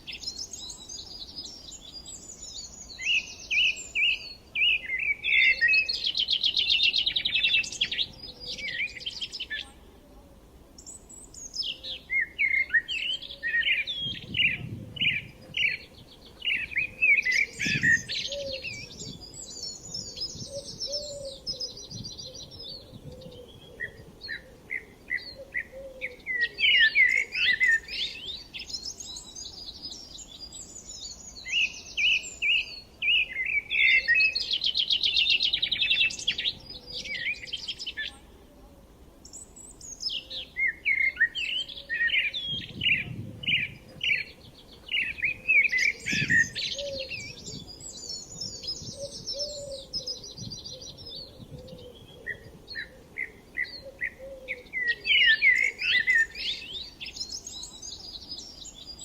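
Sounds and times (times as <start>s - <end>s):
birds chirping: 10.8s - 38.2s, 39.2s - 59.0s.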